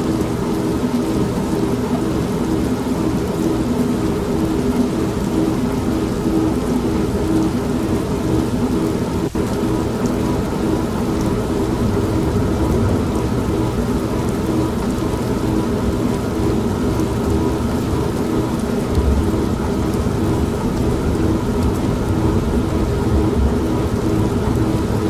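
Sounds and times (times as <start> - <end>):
steady rain: 0.0 - 25.0
washing machine motor humming: 0.0 - 25.0
low thunder rumble: 9.8 - 25.0.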